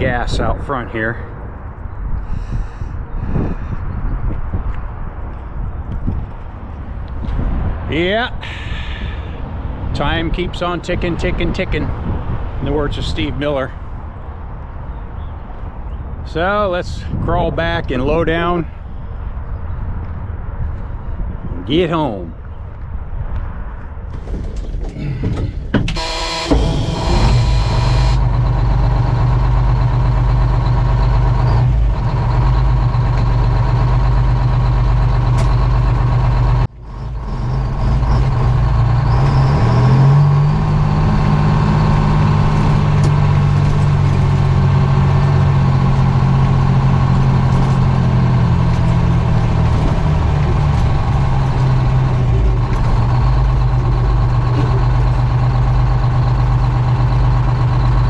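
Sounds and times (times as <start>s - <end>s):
diesel engine running: 24.1s - 58.0s.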